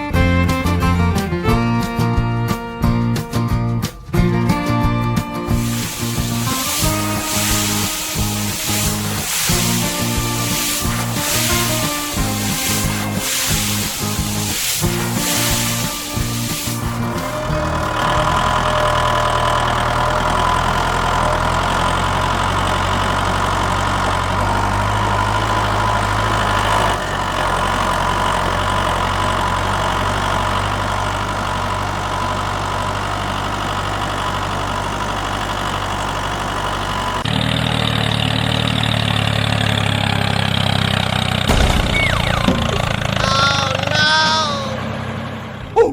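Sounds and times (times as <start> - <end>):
tractor engine idling: 5.4 - 45.8.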